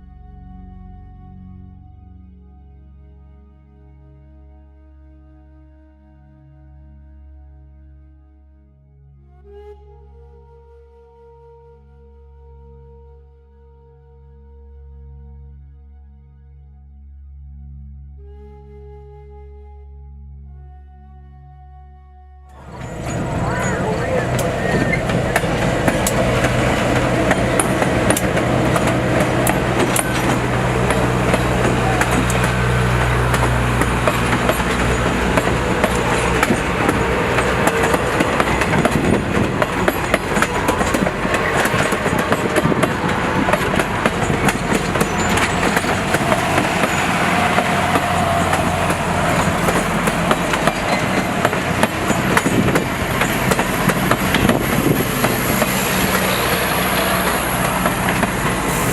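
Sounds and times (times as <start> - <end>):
train car rumble and hum: 22.5 - 58.9
wheels clicking over rail joints: 22.6 - 58.9.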